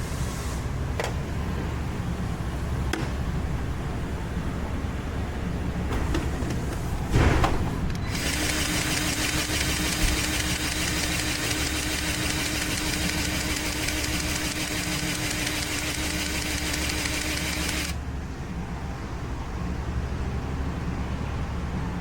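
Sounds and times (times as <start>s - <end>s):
machine hissing and humming: 6.8s - 18.0s.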